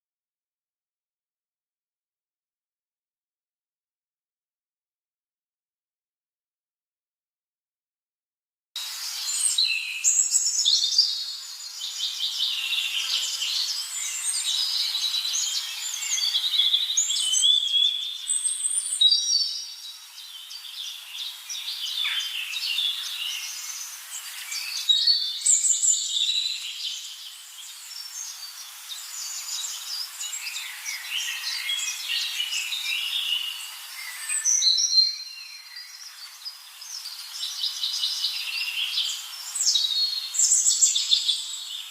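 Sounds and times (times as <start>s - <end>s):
small birds chirping: 8.8s - 41.9s.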